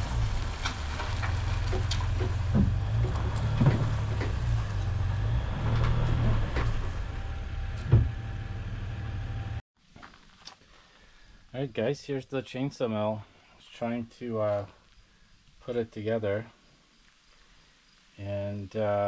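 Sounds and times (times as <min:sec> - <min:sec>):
knocks and clatters: 0:00.0 - 0:08.3
truck engine rumbling: 0:00.0 - 0:09.6.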